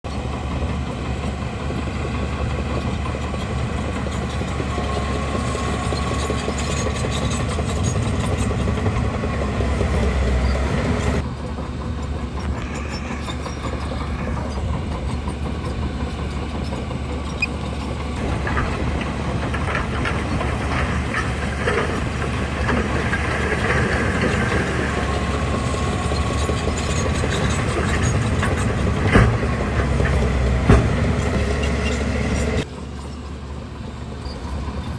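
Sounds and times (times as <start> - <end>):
bulldozer diesel engine running: 0.1 - 34.9
clanking steel tracks: 0.2 - 34.8
sharp knocks: 27.6 - 31.6.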